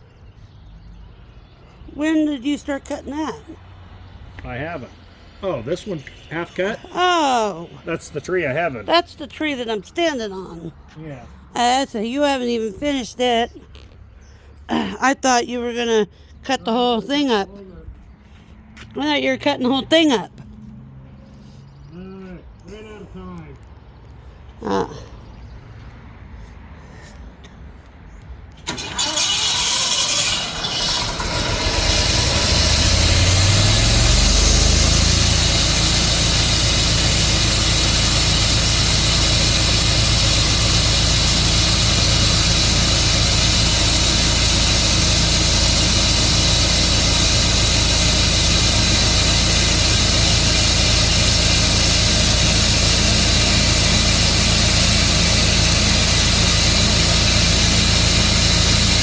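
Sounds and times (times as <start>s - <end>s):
gas engine starting and running: 2.0s - 10.6s, 28.5s - 59.0s.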